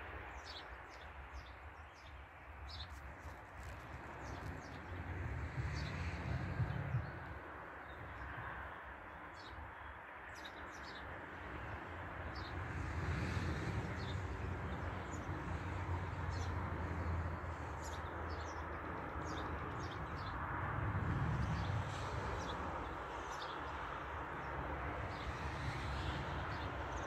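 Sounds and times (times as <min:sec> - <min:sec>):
small birds chirping: 0:00.4 - 0:07.3.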